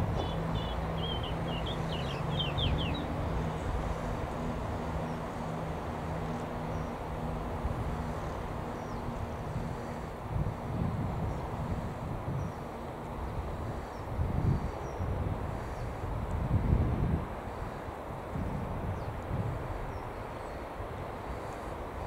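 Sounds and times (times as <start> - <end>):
train rumbling slowly: 0.0 - 22.0
small bird chirping: 0.2 - 3.1.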